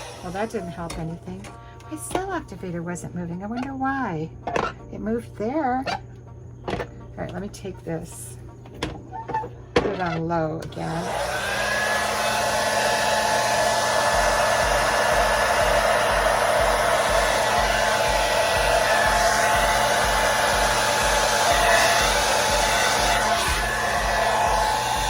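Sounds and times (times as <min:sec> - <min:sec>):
hair dryer running: 0:00.0 - 0:02.3, 0:10.6 - 0:25.0.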